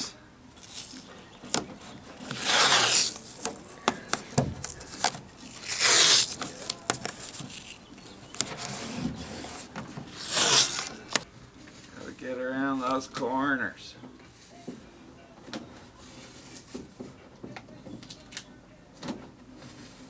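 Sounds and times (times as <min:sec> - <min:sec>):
masking tape pulled off roll: 0:00.6 - 0:11.2.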